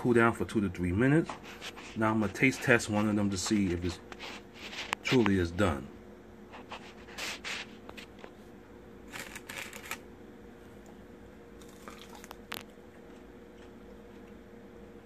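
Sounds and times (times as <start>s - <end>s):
faint steady hum: 0.0s - 15.0s
crunchy chewing: 9.1s - 10.0s, 11.6s - 14.5s.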